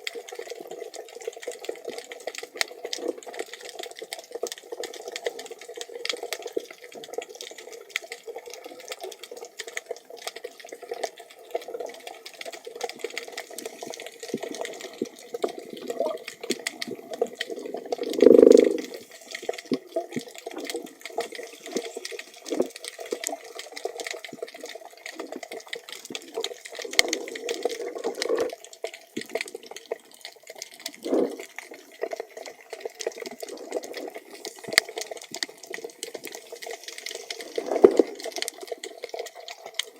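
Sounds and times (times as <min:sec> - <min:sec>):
bubbling gurgle: 0:00.0 - 0:39.9
small clicks and crackles: 0:00.0 - 0:39.9
underwater water noise: 0:00.0 - 0:39.9.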